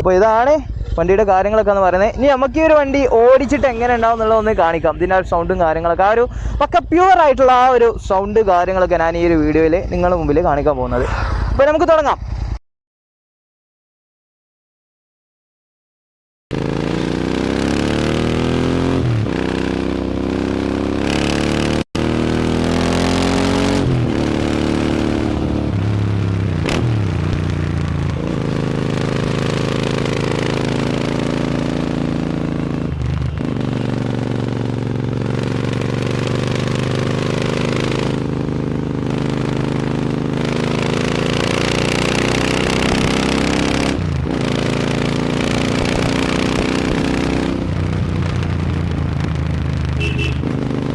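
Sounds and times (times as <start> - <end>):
motorcycle engine accelerating: 16.5 - 50.9.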